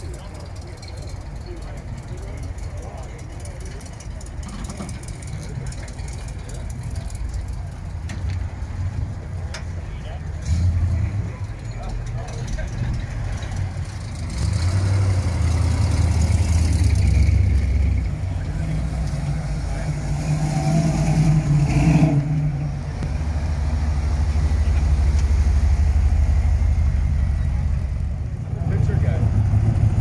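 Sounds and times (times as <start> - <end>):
car engine rumbling: 0.0 - 30.0.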